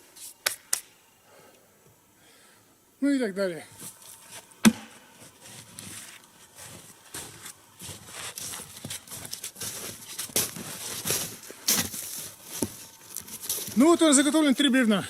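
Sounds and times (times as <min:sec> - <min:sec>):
footsteps crunching in snow: 0:03.8 - 0:15.0.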